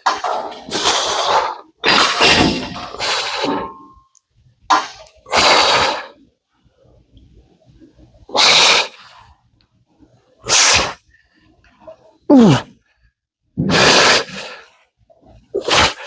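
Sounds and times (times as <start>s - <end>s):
man blowing out hard breaths: 12.3s - 12.8s.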